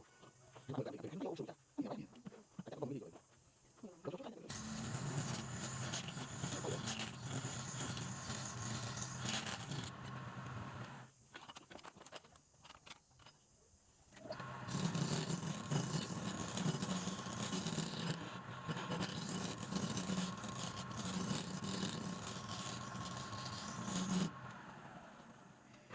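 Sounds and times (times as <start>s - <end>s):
woodturning lathe running: 4.5s - 11.0s, 14.4s - 25.9s
tool scraping spinning wood: 4.5s - 11.1s, 14.3s - 25.9s.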